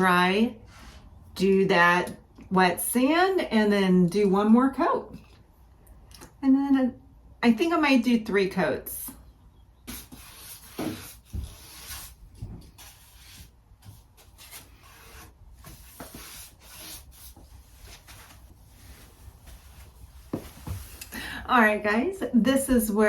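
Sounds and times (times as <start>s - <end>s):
brush swishing over wood: 9.9s - 21.0s.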